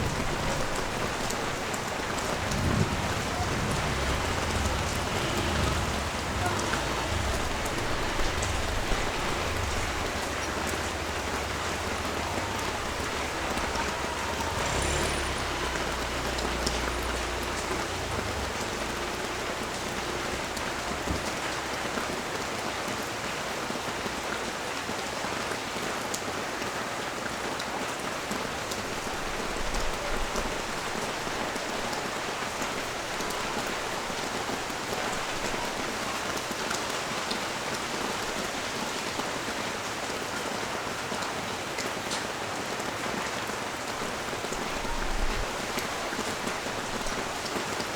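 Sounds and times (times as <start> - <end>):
low rumble: 0.0 - 21.3
sharp drips ticking: 0.0 - 22.6
steady rain falling: 0.0 - 47.9.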